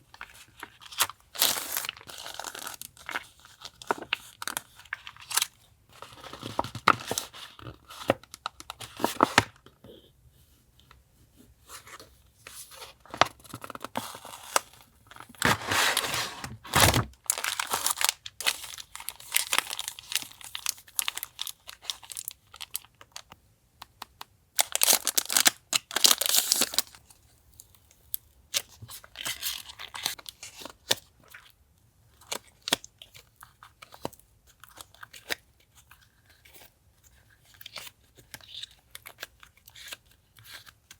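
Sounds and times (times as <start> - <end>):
packaging crinkling and rustling: 0.1 - 9.6, 12.5 - 23.3, 24.6 - 27.7.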